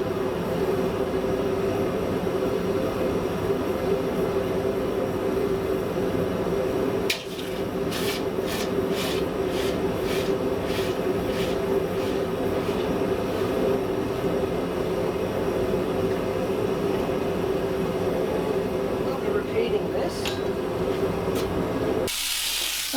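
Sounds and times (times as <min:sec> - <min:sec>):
high-pitched scraping strokes: 0:07.3 - 0:13.6.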